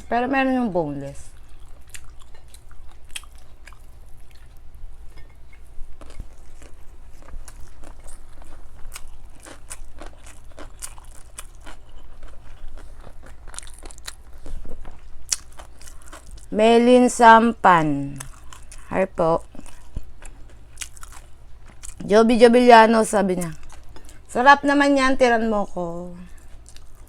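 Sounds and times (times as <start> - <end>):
crunchy chewing and biting: 1.3 - 4.7, 5.9 - 16.6, 18.2 - 22.0, 26.4 - 27.0.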